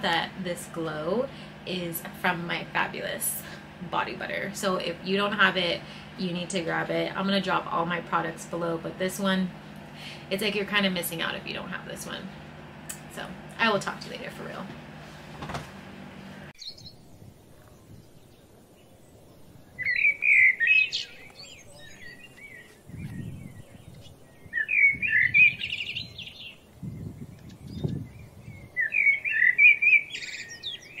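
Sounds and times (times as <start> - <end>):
songbird warbling: 16.6 - 31.0
soft low rumbles: 21.2 - 28.8.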